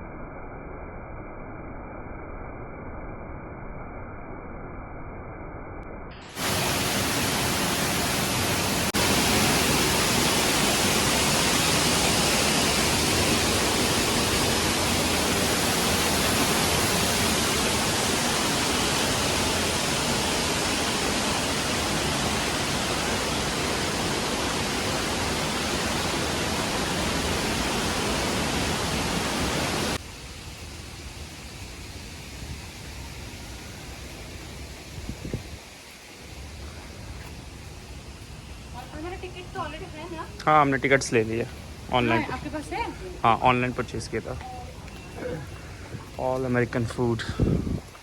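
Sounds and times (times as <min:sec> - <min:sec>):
waterfall rushing: 0:06.2 - 0:30.2, 0:38.3 - 0:48.0.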